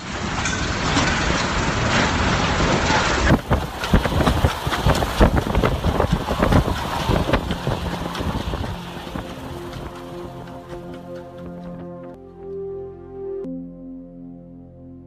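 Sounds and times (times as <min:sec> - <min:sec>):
sharp wind gusts and knocks: 0:00.0 - 0:12.2
wind buffeting microphone: 0:02.5 - 0:12.0.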